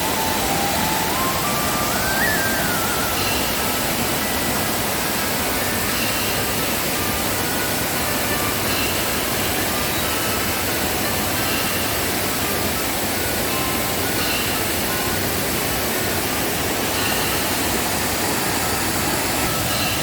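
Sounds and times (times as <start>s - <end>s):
faint short high tones: 0.0s - 4.4s
waterfall rushing: 0.0s - 5.4s.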